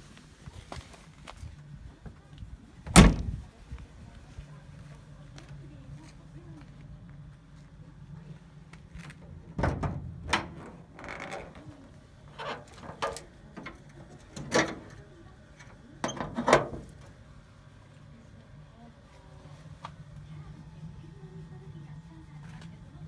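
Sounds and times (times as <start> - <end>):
faint low hum: 1.4 - 23.0
mechanical clicks and clunks: 12.4 - 17.0.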